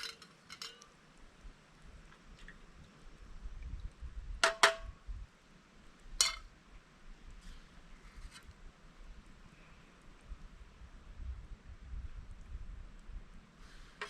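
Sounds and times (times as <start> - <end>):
tableware clinking: 0.0 - 0.9, 6.2 - 6.4.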